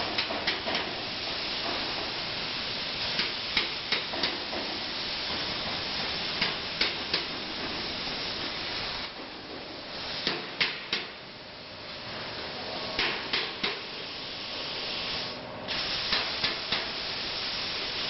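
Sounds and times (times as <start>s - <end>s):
plasma cutter hissing: 0.0s - 9.1s, 12.8s - 18.0s.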